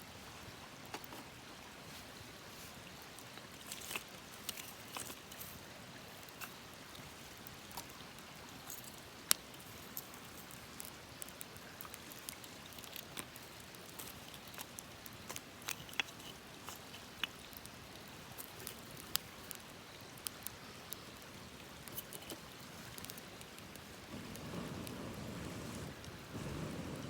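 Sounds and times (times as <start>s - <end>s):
faint hiss: 0.0s - 27.0s
campfire crackling and popping: 2.9s - 27.0s.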